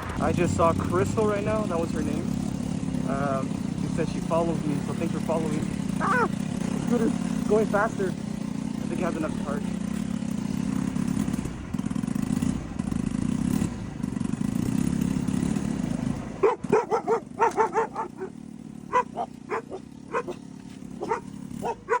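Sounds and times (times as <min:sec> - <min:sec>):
scooter engine running: 0:00.0 - 0:22.0
dog barking: 0:06.0 - 0:06.4, 0:16.4 - 0:22.0.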